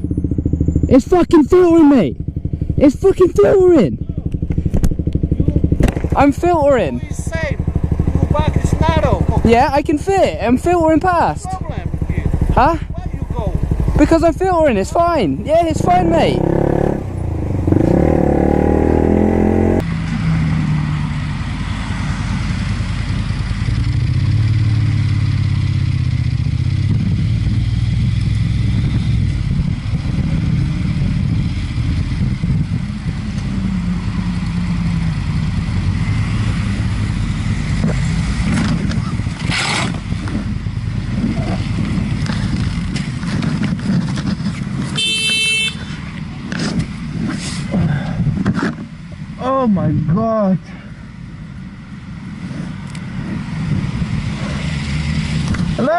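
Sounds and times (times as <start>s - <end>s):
motorcycle engine running: 0.0s - 19.8s, 22.4s - 47.3s
road noise: 0.0s - 55.9s
high-pitched horn toot: 45.0s - 45.8s.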